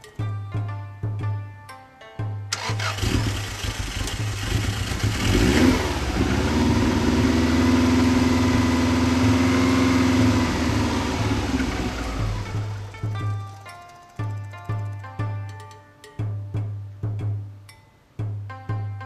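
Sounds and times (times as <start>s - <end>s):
car engine starting and idling: 2.5s - 13.1s.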